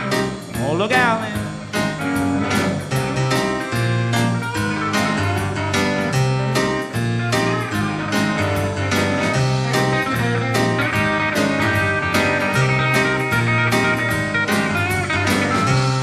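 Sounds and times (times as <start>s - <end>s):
guitar: 0.0s - 16.0s
live rockabilly band: 0.0s - 16.0s
steady drum beat: 0.0s - 16.0s
walking bass line: 0.0s - 16.0s.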